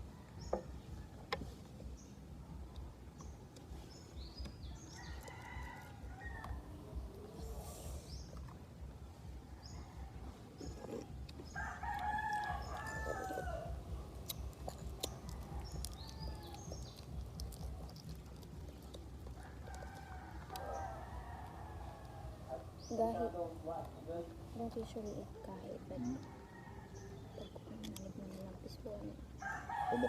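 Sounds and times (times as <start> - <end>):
steady low rumble: 6.0 - 25.9
rooster crowing: 11.6 - 13.8, 29.4 - 30.0.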